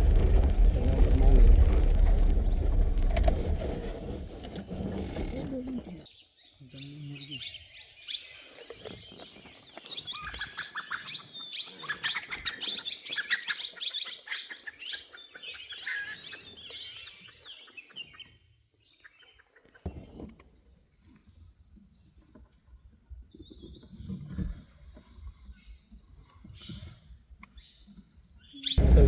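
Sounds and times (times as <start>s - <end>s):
low rumble: 0.0s - 5.6s, 28.8s - 29.0s.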